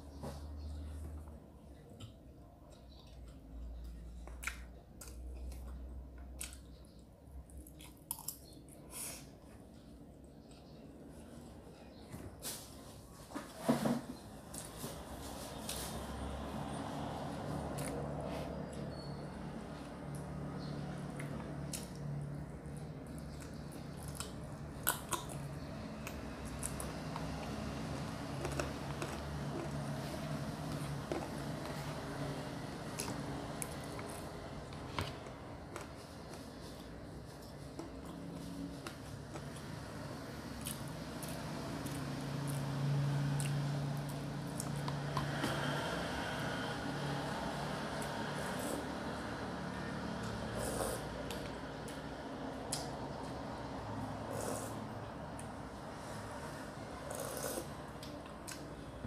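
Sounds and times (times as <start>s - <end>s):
person chewing rice: 7.5s - 8.6s, 21.2s - 39.9s, 40.5s - 45.7s, 57.0s - 58.7s.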